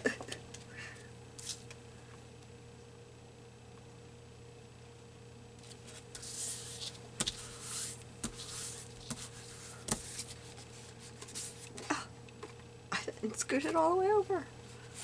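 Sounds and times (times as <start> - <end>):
paper swishing on card: 5.6 - 11.7.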